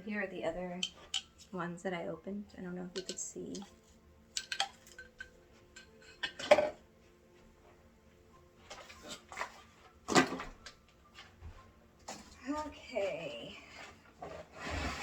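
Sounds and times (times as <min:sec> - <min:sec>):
plastic attachments clicking and knocking: 0:02.9 - 0:03.7, 0:04.3 - 0:06.4.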